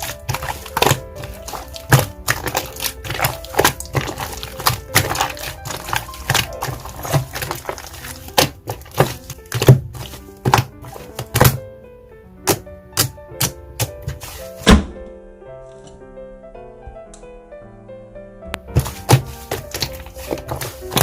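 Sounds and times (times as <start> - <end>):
slime clicking and popping: 0.0 - 11.6
background music: 0.0 - 21.0.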